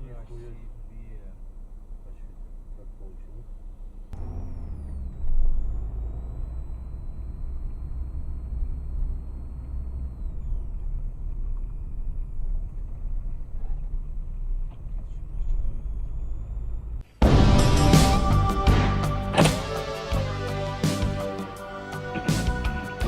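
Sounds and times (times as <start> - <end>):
vehicle engine and road noise: 0.0 - 23.0
music: 17.1 - 23.0.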